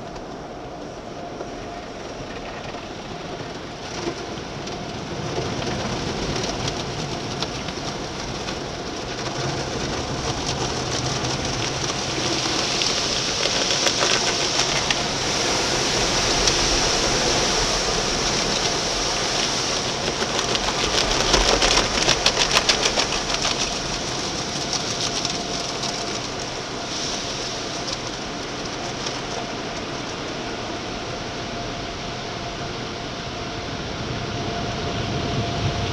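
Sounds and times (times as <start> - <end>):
water spray drumming on car: 5.0 - 30.7.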